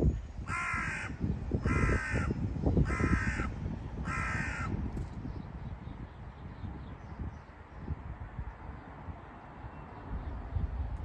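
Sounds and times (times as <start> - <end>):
bird harsh calls: 0.5 - 4.8.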